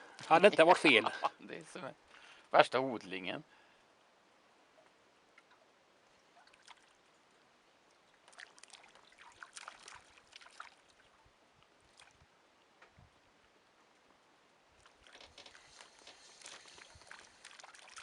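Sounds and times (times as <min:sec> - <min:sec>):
small fish splashing at surface: 0:08.3 - 0:11.1, 0:14.8 - 0:18.0.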